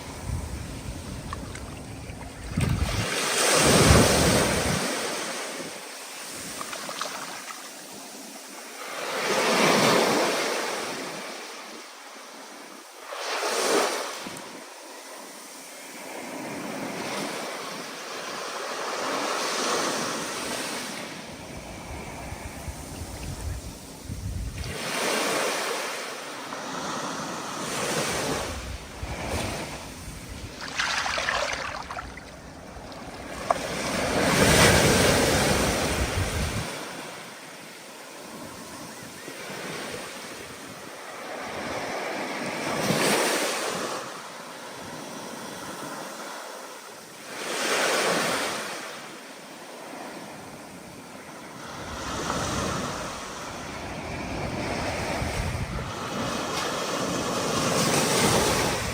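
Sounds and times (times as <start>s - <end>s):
stormy wind: 0.0s - 5.1s, 21.4s - 24.9s, 28.2s - 36.9s, 51.8s - 58.9s
waves breaking: 0.0s - 11.7s, 23.7s - 37.5s.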